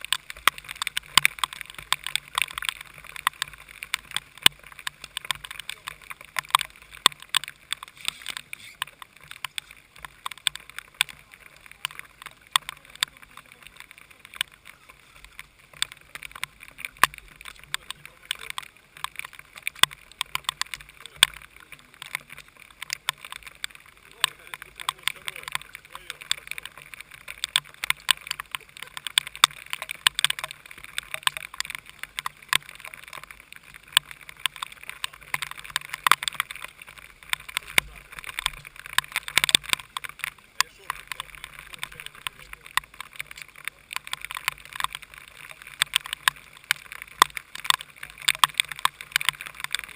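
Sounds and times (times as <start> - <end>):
hiss of rain and spray: 0.0 - 19.3
raindrops ticking on camera: 0.0 - 49.9.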